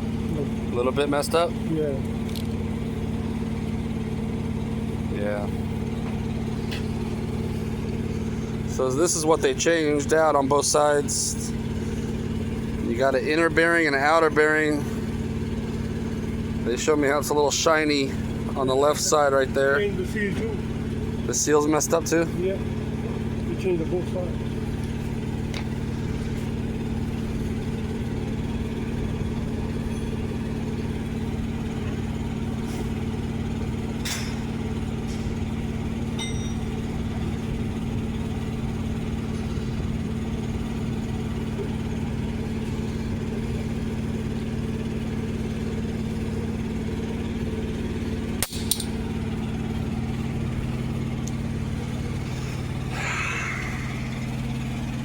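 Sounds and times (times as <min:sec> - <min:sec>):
diesel truck engine idling: 0:00.0 - 0:55.0
faint metallic clinks: 0:36.2 - 0:36.8.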